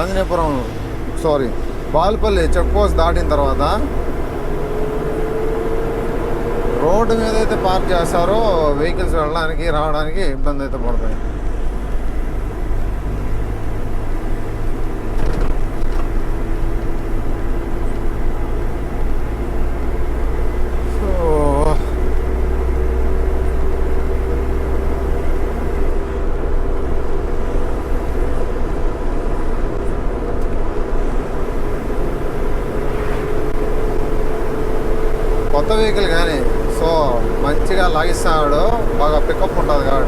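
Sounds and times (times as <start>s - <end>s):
truck engine and road noise: 0.0s - 40.0s.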